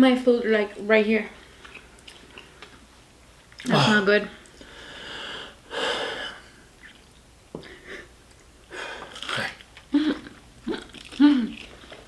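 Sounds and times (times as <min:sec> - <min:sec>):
chewing: 0:01.6 - 0:02.8, 0:09.0 - 0:12.0
person breathing heavily: 0:04.6 - 0:06.5.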